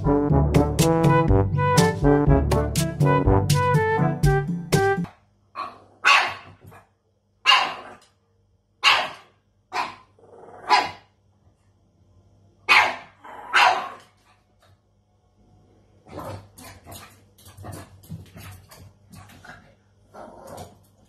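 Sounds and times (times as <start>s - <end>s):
dog barking: 5.6s - 6.6s, 7.4s - 8.0s, 8.8s - 11.0s, 12.7s - 14.1s.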